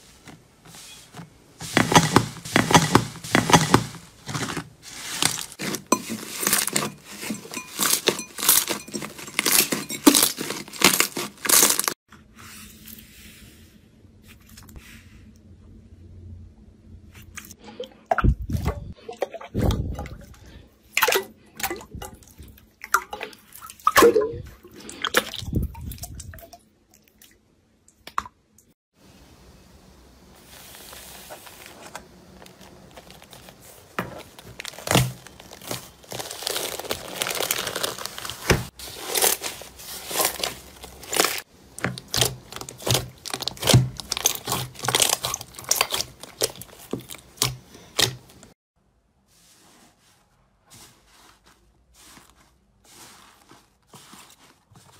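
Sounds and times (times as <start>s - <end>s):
slime squishing and popping: 34.6s - 48.2s.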